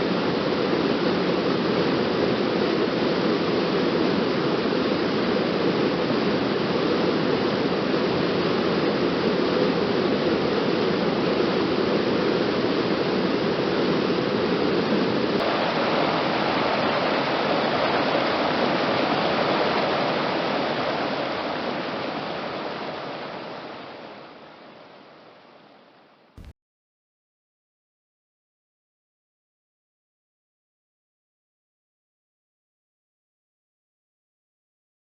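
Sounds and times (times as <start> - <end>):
waterfall rushing water: 15.4 - 25.2.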